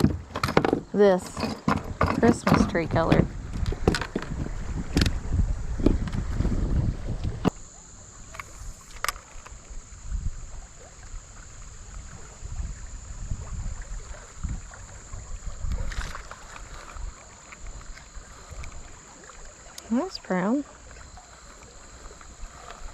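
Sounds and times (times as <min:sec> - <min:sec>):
low rumbling handling noise: 0:00.0 - 0:10.7, 0:20.8 - 0:22.9
high thin whine: 0:06.7 - 0:22.9.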